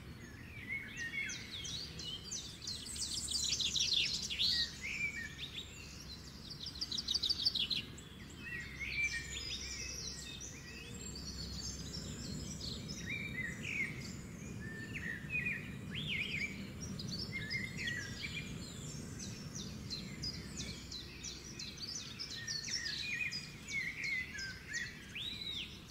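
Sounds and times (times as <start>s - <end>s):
birds chirping and trilling: 0.0s - 25.9s
low background rumble: 9.3s - 25.9s.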